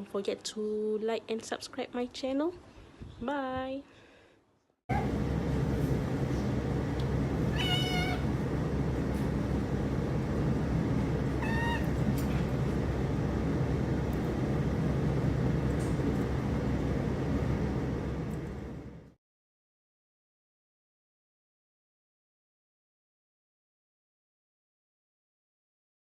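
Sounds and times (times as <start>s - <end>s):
steady low hum: 4.9s - 19.2s
kitten meowing: 7.5s - 8.3s, 11.4s - 12.0s.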